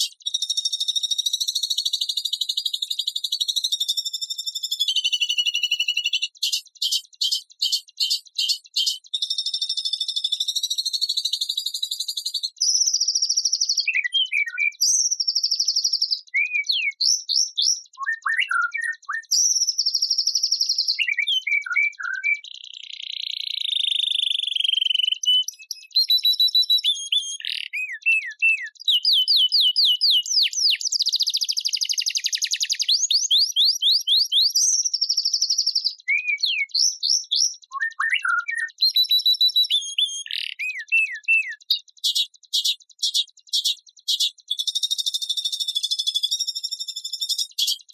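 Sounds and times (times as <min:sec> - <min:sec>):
bird chips: 0:00.0 - 0:16.8, 0:23.6 - 0:47.9
songbird whistles and trills: 0:00.0 - 0:47.9
harsh buzzy bird phrases: 0:04.9 - 0:09.1, 0:26.9 - 0:34.4, 0:39.7 - 0:44.8.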